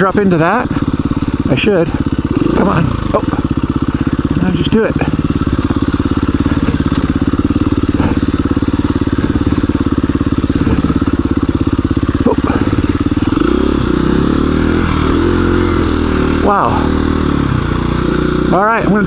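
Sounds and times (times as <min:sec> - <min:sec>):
dirt bike engine at low revs: 0:00.0 - 0:19.0
bike knocking on ground: 0:00.7 - 0:12.6.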